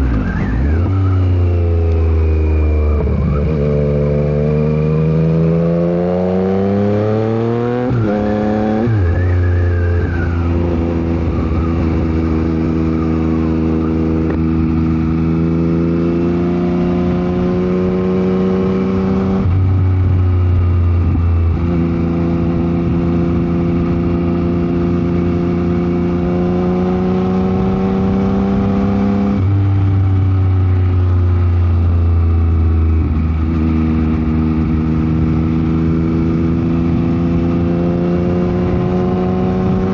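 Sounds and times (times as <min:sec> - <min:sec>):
motorcycle engine revving: 0:00.0 - 0:39.9
wind buffeting microphone: 0:08.8 - 0:15.1.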